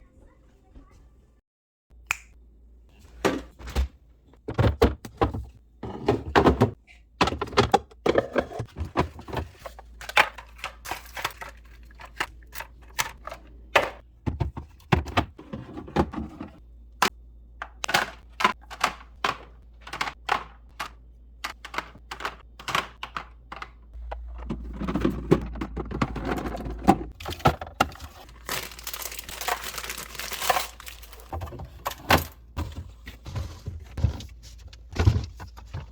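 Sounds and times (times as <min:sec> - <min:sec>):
packaging crinkling and tearing: 0:27.2 - 0:31.3.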